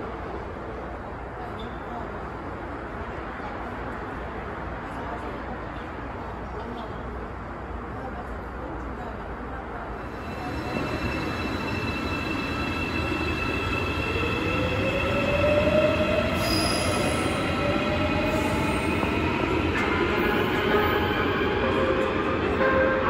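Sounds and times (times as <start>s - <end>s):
electric train whine and wheel noise: 0.0s - 23.0s
chiming train-approach melody: 10.0s - 23.0s.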